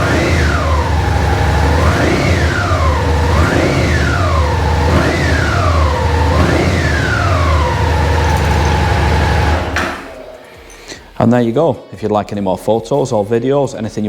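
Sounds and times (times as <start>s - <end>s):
motorcycle engine revving: 0.0s - 10.7s
motorcycle engine idling: 0.0s - 11.1s.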